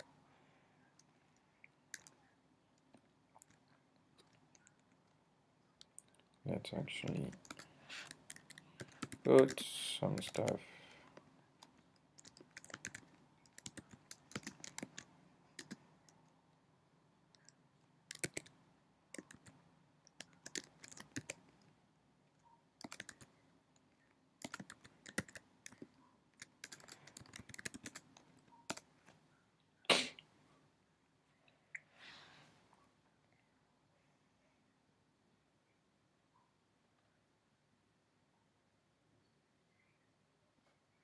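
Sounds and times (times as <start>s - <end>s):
keyboard typing: 1.9s - 2.2s, 7.0s - 10.6s, 11.6s - 16.2s, 17.4s - 21.7s, 22.4s - 29.2s.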